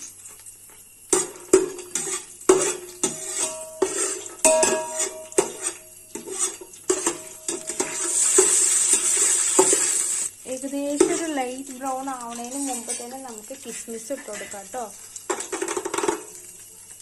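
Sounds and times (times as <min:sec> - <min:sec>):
oil sizzling: 0:00.0 - 0:17.0
metal spoon scraping metal pot: 0:01.2 - 0:09.9, 0:12.2 - 0:13.5.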